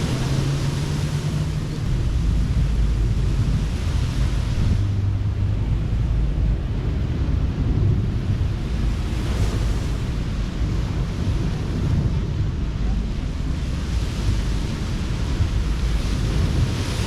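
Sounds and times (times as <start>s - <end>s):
ocean surf washing onto beach: 0.0s - 17.0s
wind buffeting microphone: 0.0s - 17.0s.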